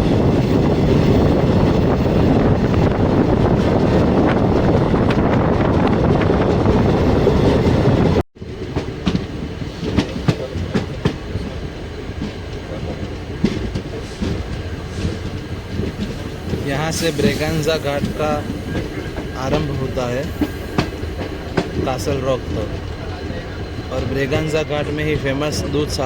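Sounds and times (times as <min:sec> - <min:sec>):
passenger train rushing: 0:00.0 - 0:26.0
wheels clacking over rail joints: 0:08.6 - 0:24.6.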